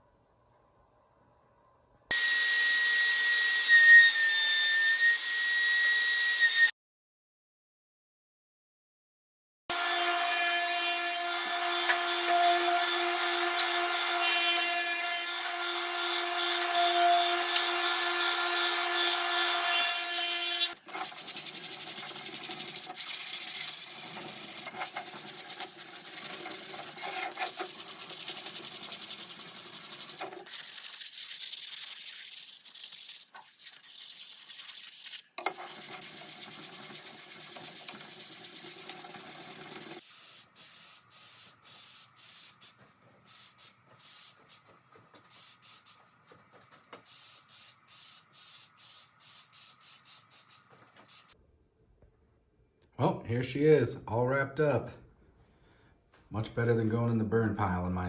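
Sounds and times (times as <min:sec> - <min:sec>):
power tool whining on wood: 0:09.7 - 0:20.8
wood rubbing and scraping: 0:42.5 - 0:47.2.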